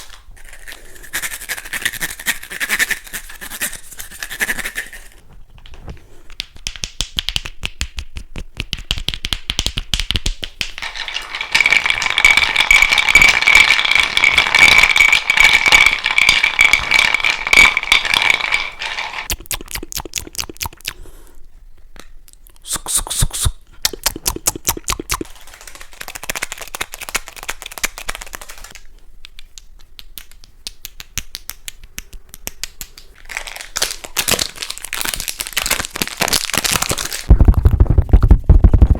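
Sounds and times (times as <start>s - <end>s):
rattling: 10.6s - 19.3s
scratching: 10.7s - 19.3s.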